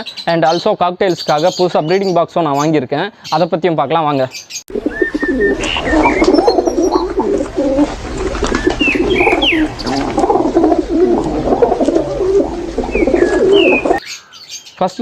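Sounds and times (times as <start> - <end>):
babble of bird calls: 0.0 - 15.0
bird whistles: 4.8 - 7.2, 8.4 - 10.2, 12.8 - 14.1.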